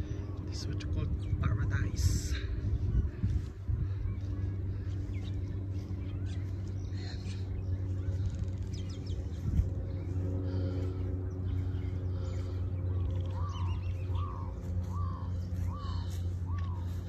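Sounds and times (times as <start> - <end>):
steady low rumble: 0.0 - 17.0
bird calling: 3.8 - 17.0.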